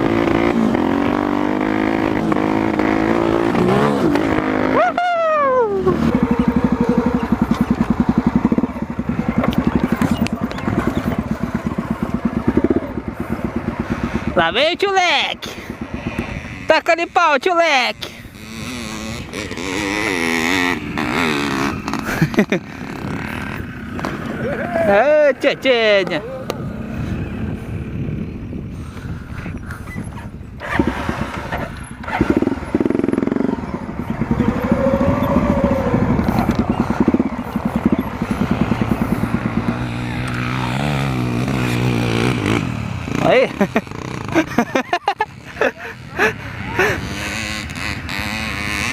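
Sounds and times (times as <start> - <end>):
dirt bike engine revving: 0.0 - 28.4, 30.6 - 48.9
motorcycle engine idling: 5.3 - 14.4, 31.9 - 41.6.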